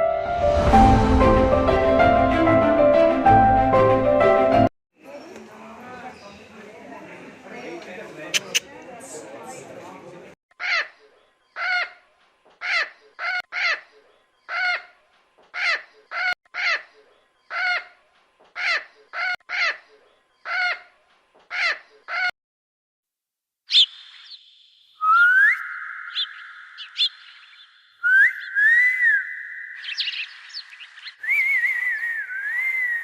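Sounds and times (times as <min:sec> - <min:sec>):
bird harsh calls: 0:10.6 - 0:22.3, 0:23.7 - 0:33.0
high whistle-like sound: 0:25.0 - 0:26.4, 0:28.0 - 0:29.8, 0:31.2 - 0:33.0.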